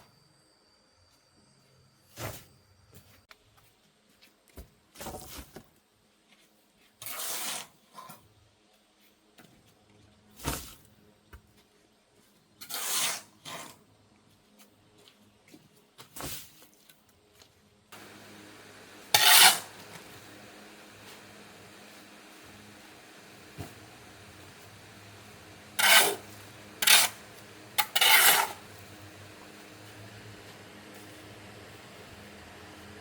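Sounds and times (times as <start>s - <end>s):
short scraping sounds: 19.1s - 20.0s, 25.8s - 28.6s.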